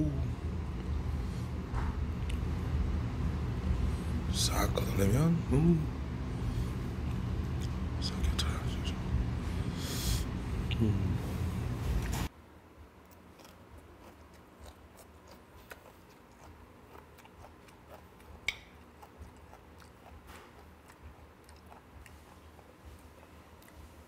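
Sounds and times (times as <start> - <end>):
person chewing with clicks: 13.0 - 24.0.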